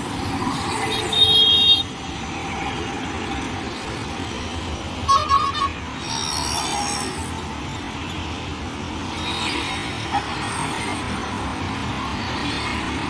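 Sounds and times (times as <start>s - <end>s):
steady traffic noise: 0.0s - 13.0s.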